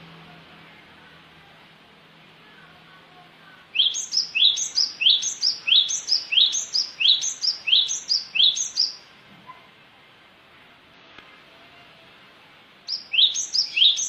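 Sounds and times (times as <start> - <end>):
bird song repeated phrases: 2.5 - 9.1, 12.9 - 14.0.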